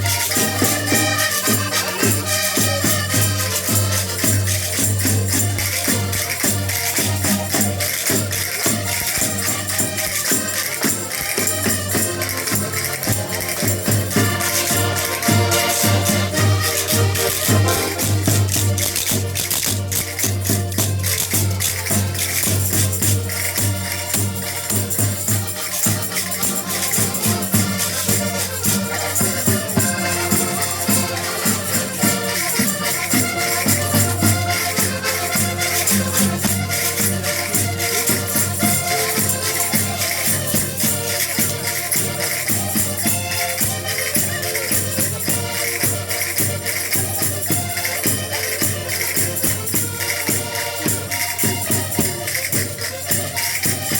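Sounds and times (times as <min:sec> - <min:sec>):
voices singing together: 0:00.0 - 0:20.2, 0:26.0 - 0:47.6
rattling and jingling percussion: 0:00.0 - 0:53.9.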